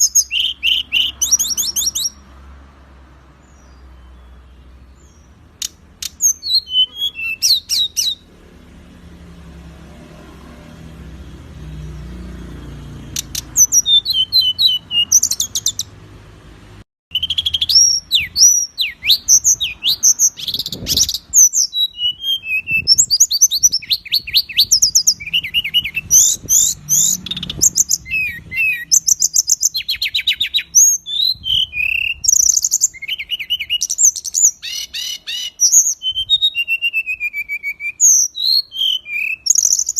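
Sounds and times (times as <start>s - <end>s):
songbird chirps and trills: 0.0s - 16.1s, 17.1s - 39.9s.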